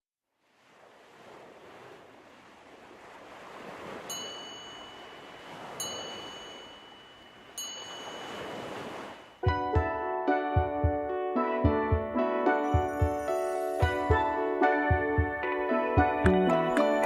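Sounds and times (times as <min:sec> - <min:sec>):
airy rushing wash: 0:01.0 - 0:09.4.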